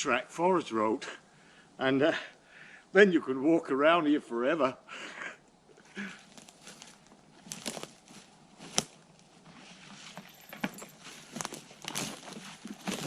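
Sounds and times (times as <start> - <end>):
footsteps through undergrowth: 6.0 - 13.0
twig snapping: 6.2 - 8.0, 8.7 - 9.0.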